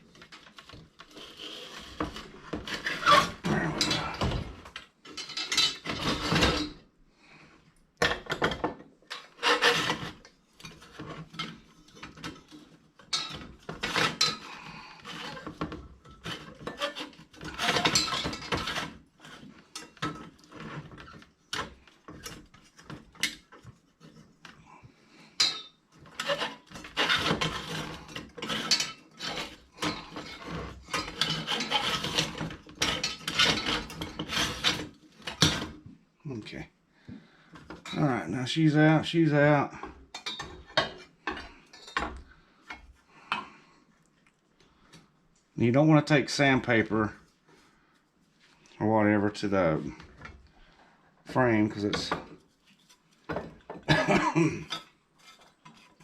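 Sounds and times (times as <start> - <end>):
metal parts scraping and clinking: 0.2 - 6.8, 8.4 - 24.6, 25.4 - 35.8.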